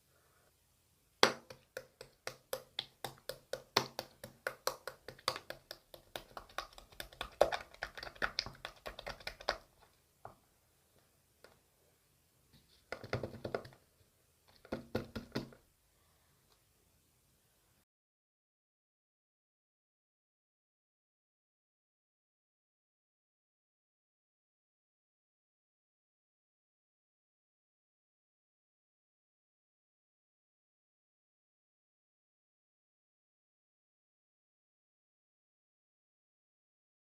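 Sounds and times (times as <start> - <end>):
rapid light taps: 1.2 - 10.4.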